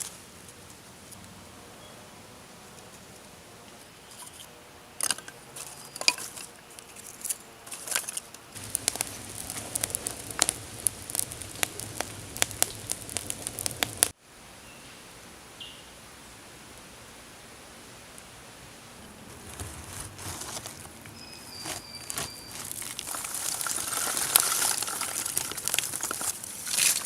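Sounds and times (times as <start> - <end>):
wood fire crackling and popping: 7.6 - 14.2, 19.0 - 27.0
low rumble of burning fire: 8.5 - 14.2, 16.2 - 27.0
faint high chirps: 21.1 - 22.8.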